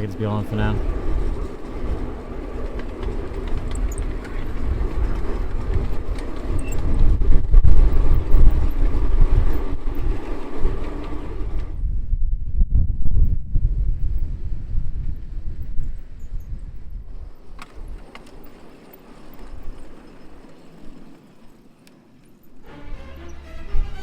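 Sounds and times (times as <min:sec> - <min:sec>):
model locomotive motor whine: 0:00.0 - 0:11.6, 0:17.1 - 0:24.0
wind rumble on microphone: 0:00.0 - 0:18.6.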